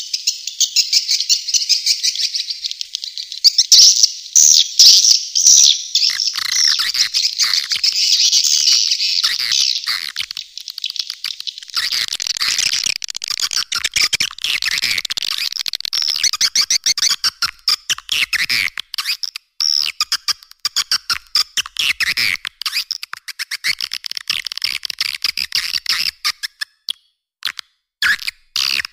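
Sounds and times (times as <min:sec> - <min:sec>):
chorus of twittering bird chirps: 0:00.0 - 0:17.4.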